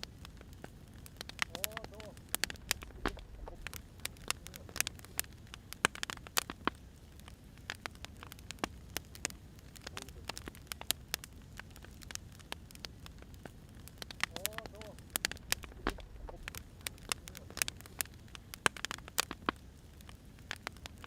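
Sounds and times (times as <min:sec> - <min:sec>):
firewood crackling: 0:00.0 - 0:21.0.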